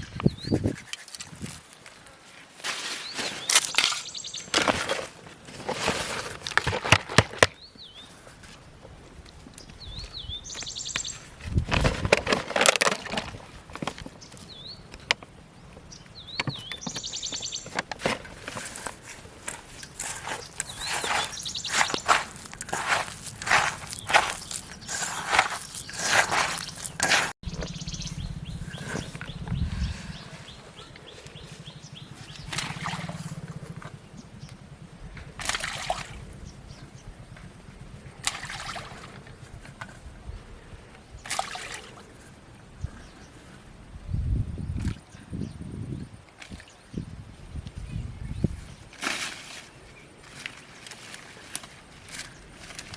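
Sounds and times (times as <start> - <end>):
rustling crunches: 0.0 - 15.3, 16.4 - 27.4
low pulsing background: 19.1 - 38.2
high buzzy bird notes: 23.2 - 35.2.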